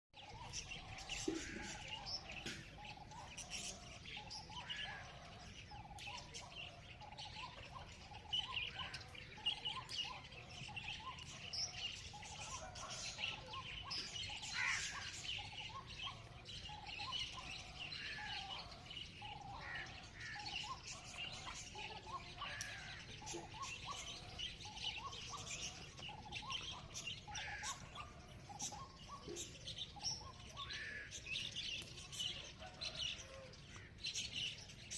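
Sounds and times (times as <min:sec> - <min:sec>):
songbirds chirping: 0:00.1 - 0:34.9.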